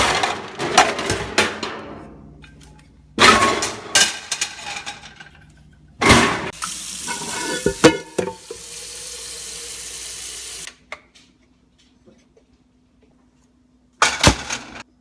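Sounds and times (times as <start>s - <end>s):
tap water running into sink: 6.6s - 10.7s
pots and dishes clanking: 7.0s - 8.6s.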